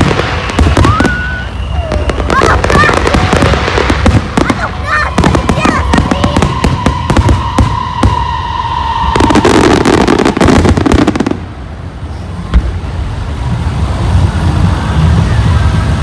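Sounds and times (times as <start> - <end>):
firework bang: 0.0 - 11.6
firework whistle: 0.0 - 13.0
firework crackling burst: 0.0 - 16.0
low rumble: 10.6 - 16.0.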